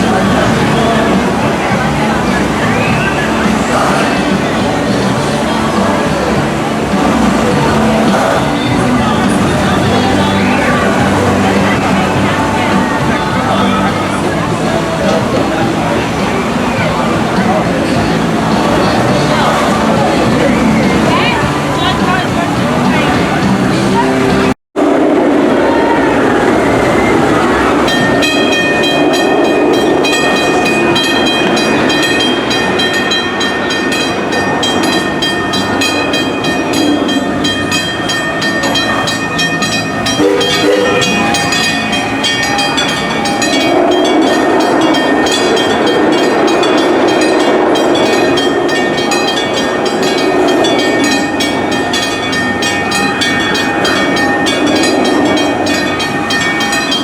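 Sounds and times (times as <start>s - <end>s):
high-pitched steady tones: 0.0s - 57.0s
train wheels clicking: 26.8s - 57.0s.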